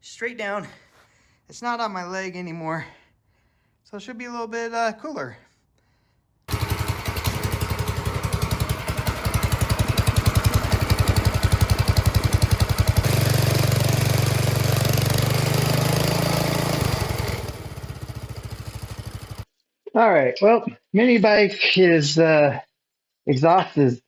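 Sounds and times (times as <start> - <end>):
small engine running: 6.5 - 19.5.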